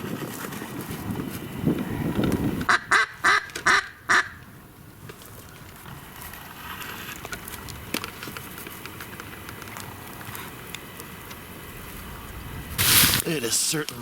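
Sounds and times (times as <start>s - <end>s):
duck quacks: 2.7s - 4.4s.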